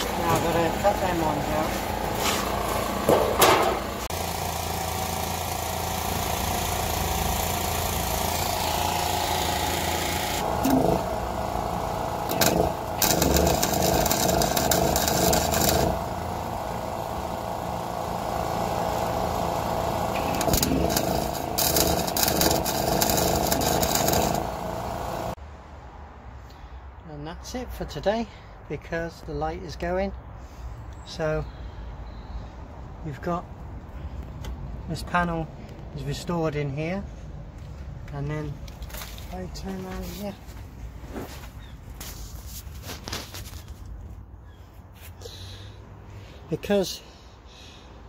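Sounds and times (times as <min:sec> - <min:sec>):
angle grinder cutting sheet metal: 0:08.2 - 0:18.0, 0:18.6 - 0:25.4.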